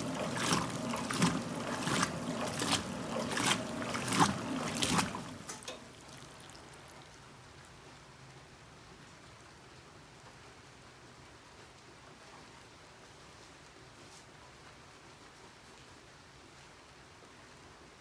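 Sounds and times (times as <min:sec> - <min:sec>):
faint water wash: 0:00.0 - 0:07.2
washing machine clothes splashing: 0:00.0 - 0:07.2.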